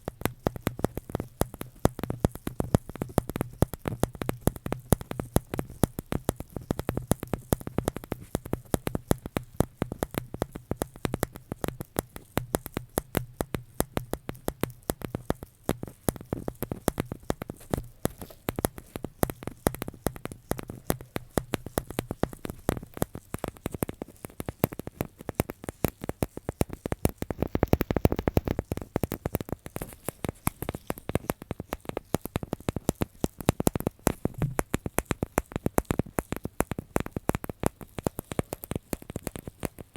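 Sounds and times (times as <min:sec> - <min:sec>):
close clicks and taps: 0:00.7 - 0:39.9.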